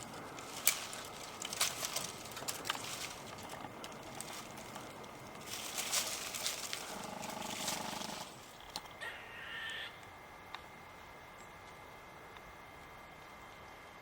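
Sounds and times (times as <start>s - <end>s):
footsteps crunching on leaves: 0.0s - 8.6s.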